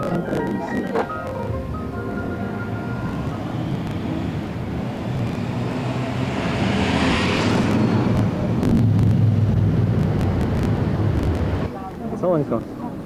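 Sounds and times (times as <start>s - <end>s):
vehicle passing by: 1.4s - 11.7s.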